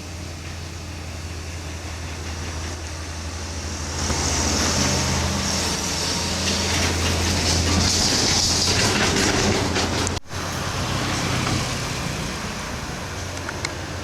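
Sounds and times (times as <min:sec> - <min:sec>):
diesel truck engine labouring: 0:00.0 - 0:14.0.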